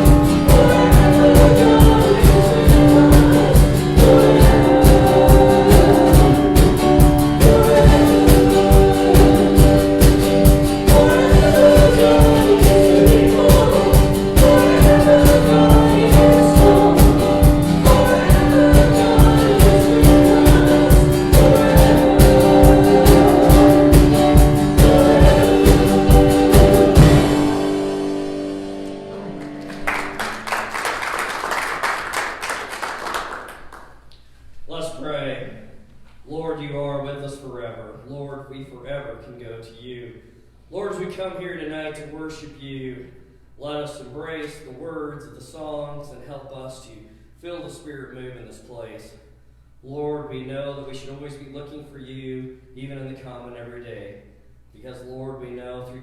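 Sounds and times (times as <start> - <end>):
steady drum beat: 0.0 - 28.5
guitar: 0.0 - 30.8
worship song singing: 0.0 - 35.6
applause: 29.4 - 34.0.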